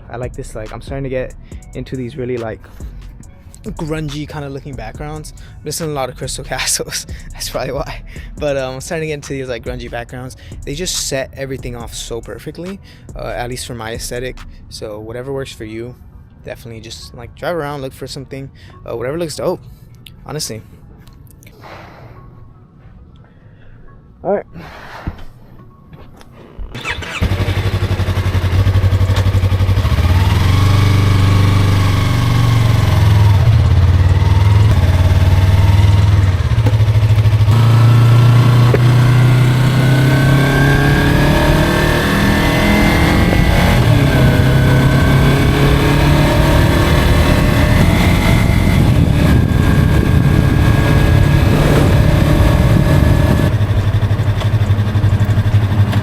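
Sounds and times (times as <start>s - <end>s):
motorcycle engine revving: 26.7s - 56.0s.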